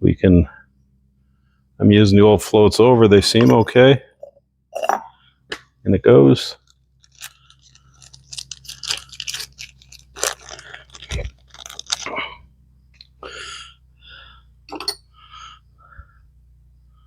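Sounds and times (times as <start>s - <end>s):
hands handling small parts: 6.6s - 12.2s.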